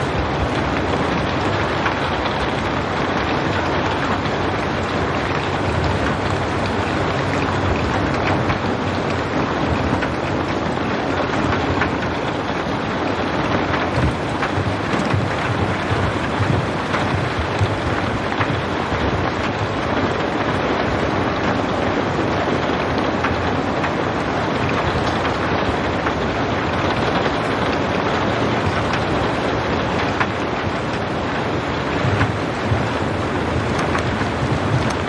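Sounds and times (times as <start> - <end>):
rain drops ticking: 0.0 - 35.0.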